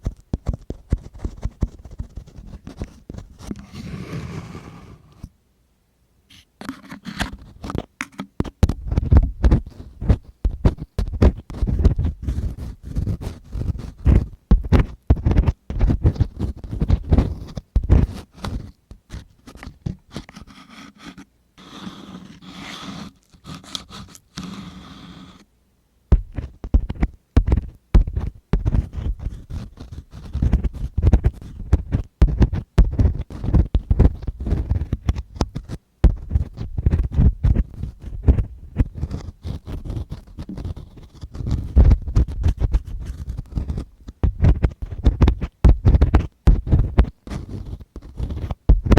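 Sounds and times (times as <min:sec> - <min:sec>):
tool scraping against microphone: 0:03.4 - 0:05.3.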